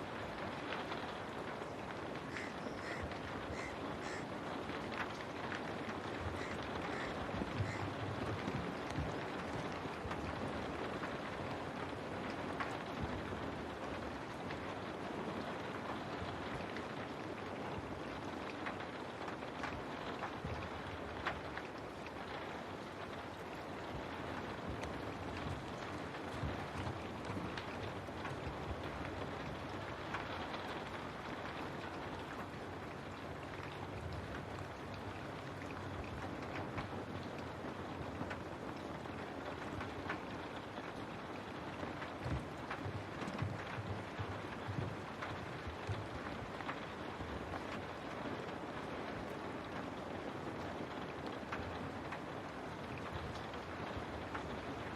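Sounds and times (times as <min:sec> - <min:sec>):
rain on a window: 0:00.0 - 0:54.9.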